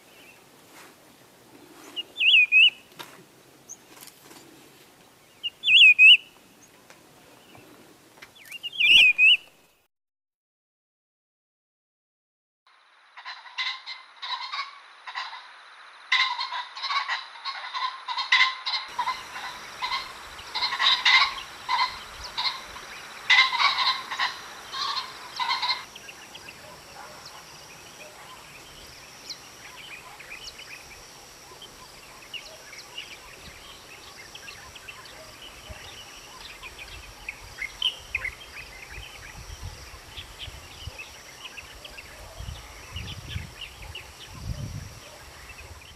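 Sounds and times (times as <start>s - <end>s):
small birds chirping: 1.6s - 2.9s, 5.0s - 9.6s, 16.2s - 45.9s
pheasant calling: 1.8s - 2.9s, 5.4s - 6.8s, 8.4s - 9.5s, 13.2s - 45.9s.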